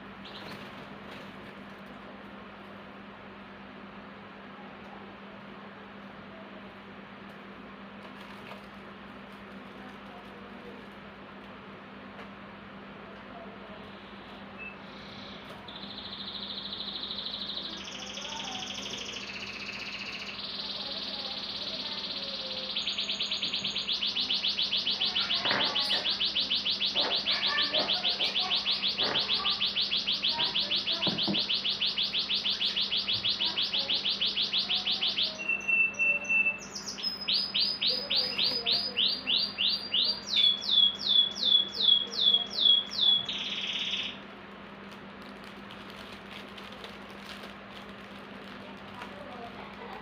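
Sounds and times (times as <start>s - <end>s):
songbird singing trills: 14.6s - 44.2s.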